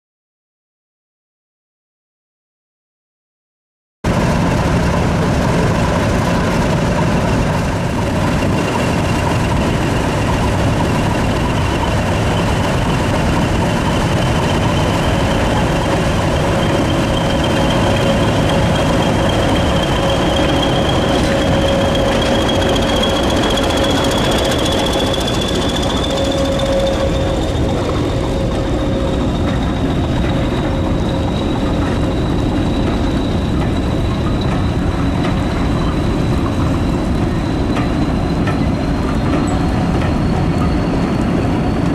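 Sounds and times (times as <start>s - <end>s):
diesel locomotive engine running: 4.1s - 41.9s
high rising whine: 4.1s - 41.9s
lower tone: 4.1s - 41.9s.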